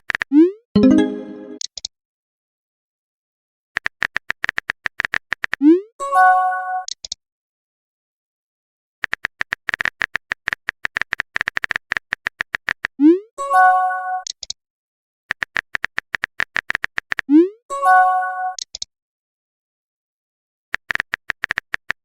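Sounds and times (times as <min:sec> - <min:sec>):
message alert chime: 0:00.8 - 0:01.6
rapid keyboard clicks: 0:03.8 - 0:05.6, 0:09.0 - 0:12.9, 0:15.3 - 0:17.2, 0:20.8 - 0:22.0.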